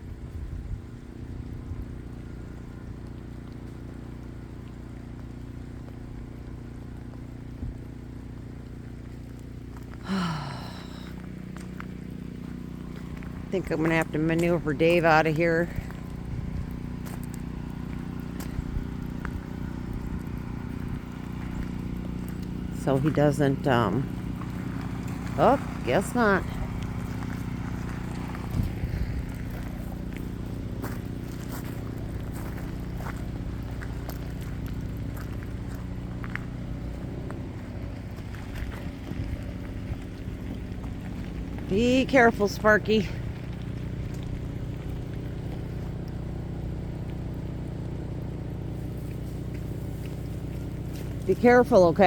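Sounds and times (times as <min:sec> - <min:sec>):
engine humming: 0:00.0 - 0:52.0
small ticks and clicks: 0:01.3 - 0:10.0, 0:15.8 - 0:22.8, 0:43.2 - 0:51.3.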